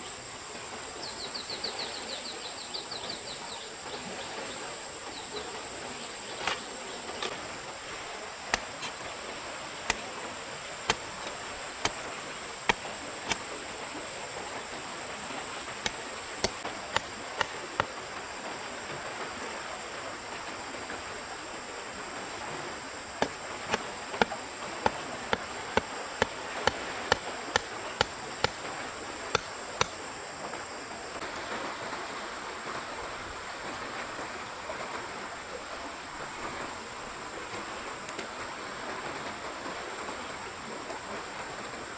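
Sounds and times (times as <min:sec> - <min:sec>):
insect drone: 0:00.0 - 0:41.9
stream rushing: 0:03.4 - 0:41.9
sharp chopping knocks: 0:08.5 - 0:08.9, 0:10.8 - 0:13.6, 0:15.8 - 0:18.0, 0:23.2 - 0:30.0.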